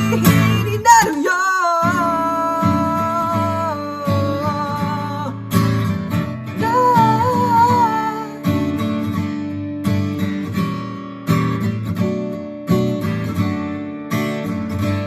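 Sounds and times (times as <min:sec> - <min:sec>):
man singing: 0:00.0 - 0:05.5, 0:06.6 - 0:08.5
acoustic guitar strumming: 0:00.0 - 0:15.0.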